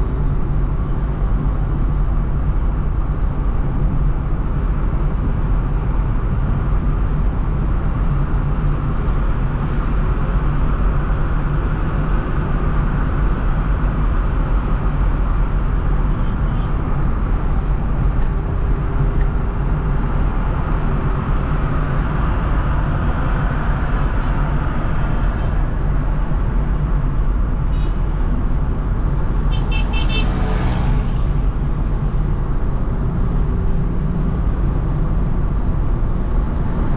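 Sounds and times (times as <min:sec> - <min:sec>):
car driving in traffic: 0:00.0 - 0:36.9.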